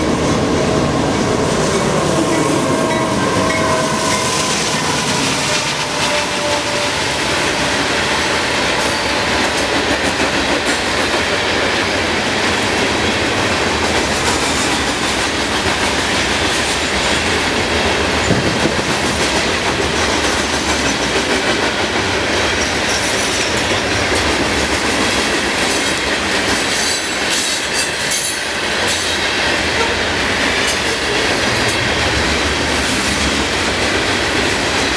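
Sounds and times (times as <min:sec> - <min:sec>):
freight train cars rolling: 0:00.0 - 0:34.9
wheels clicking over rail joints: 0:00.0 - 0:34.9
high wheel squeal: 0:00.5 - 0:09.5.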